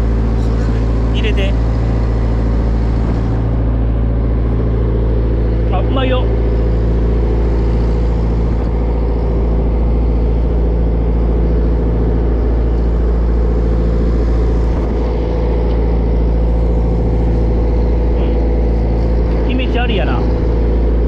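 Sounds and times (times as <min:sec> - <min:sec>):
boat diesel engine drone: 0:00.0 - 0:21.0.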